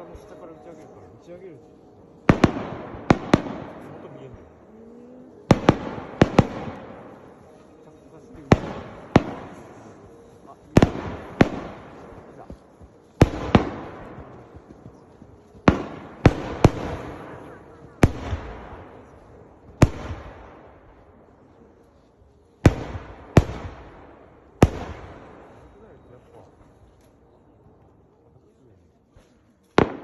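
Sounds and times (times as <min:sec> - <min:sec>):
fireworks bangs: 0:02.2 - 0:04.4, 0:05.5 - 0:20.9.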